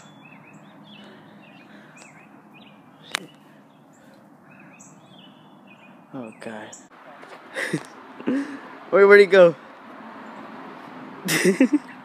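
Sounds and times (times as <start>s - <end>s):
small bird chirping: 0.0s - 6.9s.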